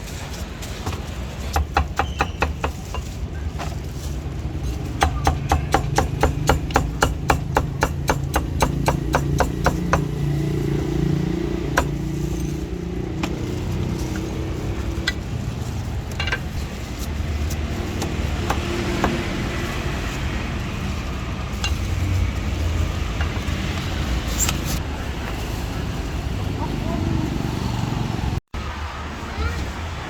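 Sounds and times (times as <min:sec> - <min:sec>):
low street rumble: 0:00.0 - 0:30.0
cleaver chopping meat on block: 0:05.0 - 0:10.2.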